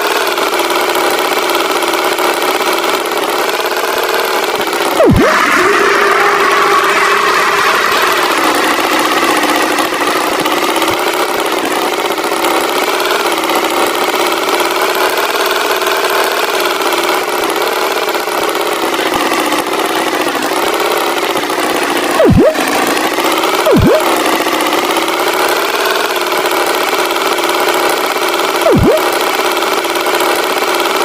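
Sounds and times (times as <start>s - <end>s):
cartoon tractor engine running: 0.0s - 31.0s
swooping tone: 5.0s - 8.2s, 22.2s - 22.7s, 23.7s - 24.2s, 28.6s - 29.2s.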